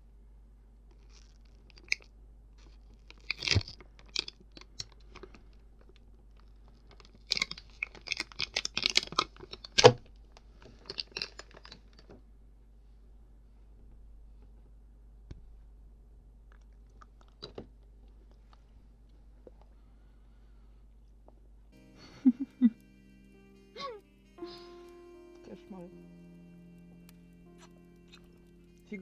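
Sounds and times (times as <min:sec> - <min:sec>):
sweets packaging crinkling: 0:00.9 - 0:12.2.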